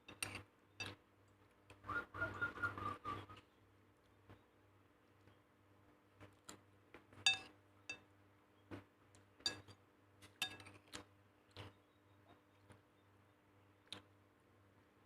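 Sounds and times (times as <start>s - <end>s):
utensils clinking against dishes: 7.3s - 8.0s, 10.3s - 10.8s.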